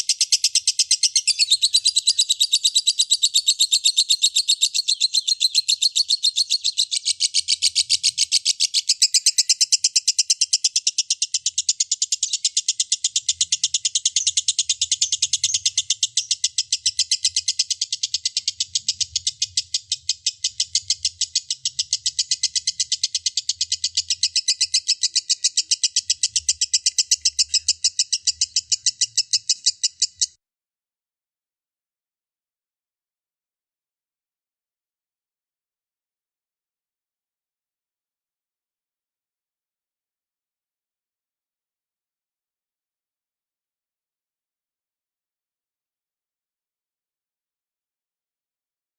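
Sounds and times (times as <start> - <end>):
lovebird chattering call: 0.0 - 30.4.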